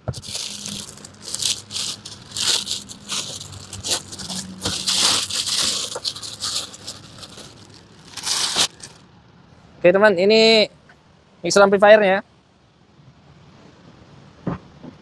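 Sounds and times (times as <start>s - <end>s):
plastic packing crinkling: 0.0s - 9.0s.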